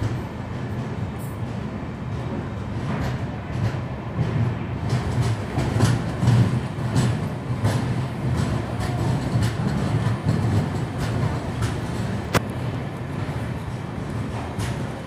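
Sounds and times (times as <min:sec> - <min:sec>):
train wheels rumbling on rails: 0:00.0 - 0:15.0
wheel clacks: 0:02.8 - 0:12.6.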